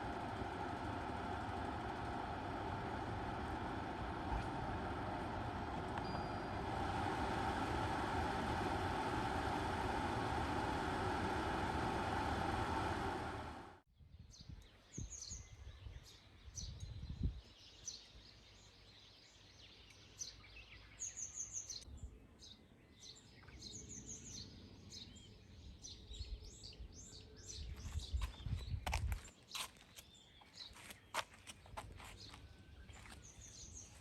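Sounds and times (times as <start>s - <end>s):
faint low rumble: 0.0s - 13.8s
vehicle running: 0.0s - 13.8s.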